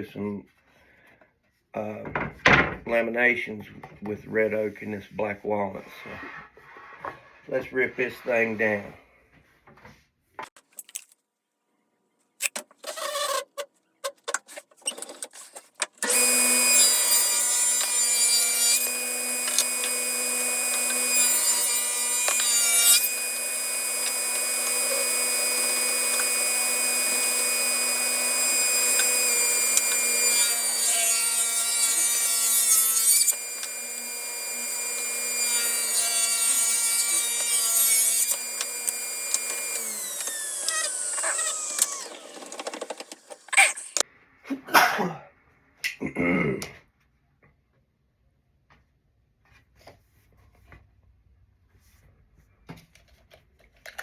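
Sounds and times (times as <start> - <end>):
table saw cutting wood: 16.0 - 44.0.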